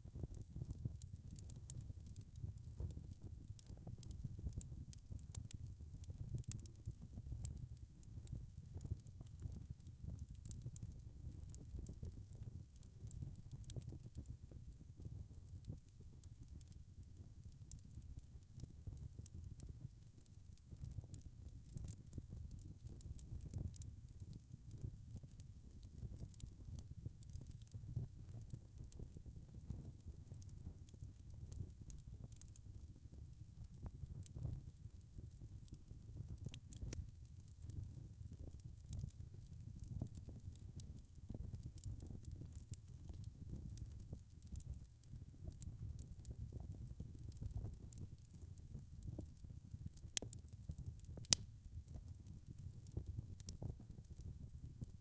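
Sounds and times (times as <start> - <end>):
wood fire crackling: 0.1 - 55.0.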